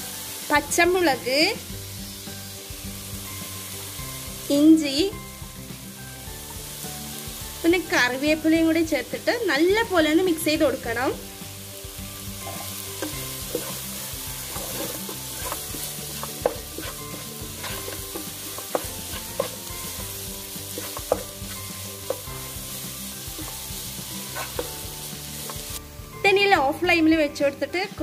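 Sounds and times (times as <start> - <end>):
vegetables sizzling in hot oil: 0.0 - 26.8
spatula knocking and scraping pan: 12.4 - 22.5, 23.2 - 25.7.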